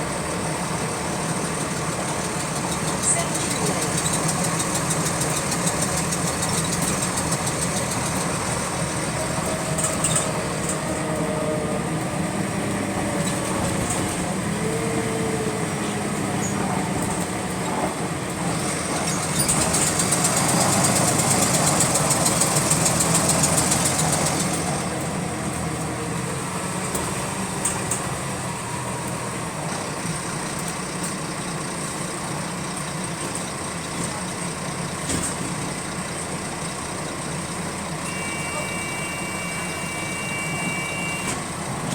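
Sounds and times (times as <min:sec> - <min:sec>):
bus diesel engine running: 0:00.0 - 0:41.9
repetitive engine clicking: 0:01.3 - 0:11.0, 0:16.6 - 0:25.1.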